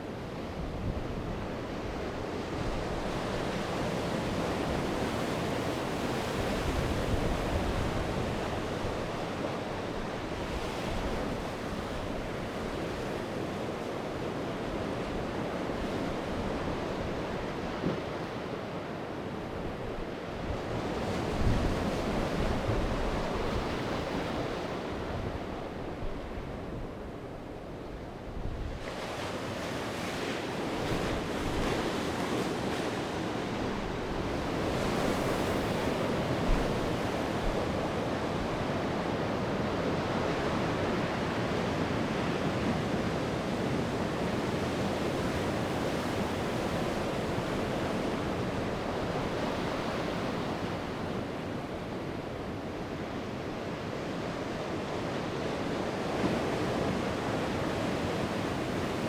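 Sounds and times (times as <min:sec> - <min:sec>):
waves breaking on shore: 0:00.3 - 0:59.0.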